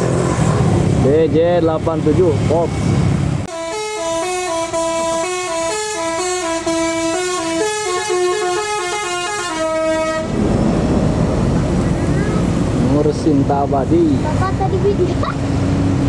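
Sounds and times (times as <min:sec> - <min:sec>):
bus musical horn playing tune: 0:03.5 - 0:10.4.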